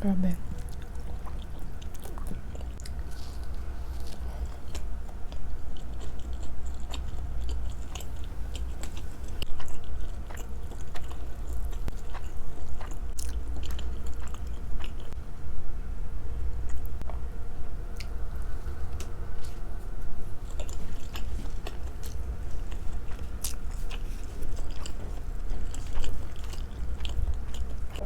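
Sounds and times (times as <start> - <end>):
person chewing wet food: 0.4 - 15.2, 17.9 - 28.0.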